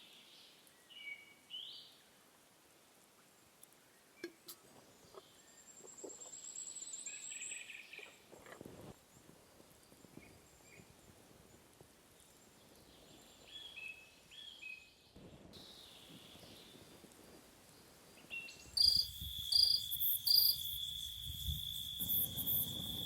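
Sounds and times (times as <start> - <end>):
bird chirps: 18.2 - 23.0.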